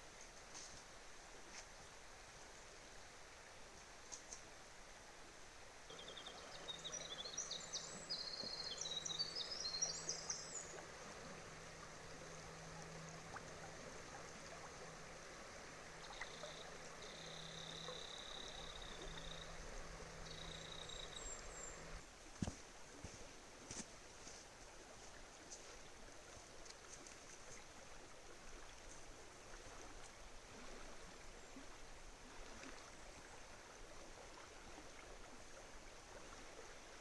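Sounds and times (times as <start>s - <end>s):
rushing stream hiss: 0.0s - 22.8s
bird chirping song: 5.9s - 22.0s.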